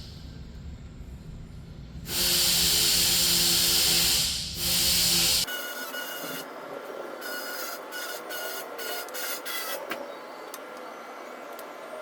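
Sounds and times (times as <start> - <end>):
compressed air hissing: 2.1 - 5.5.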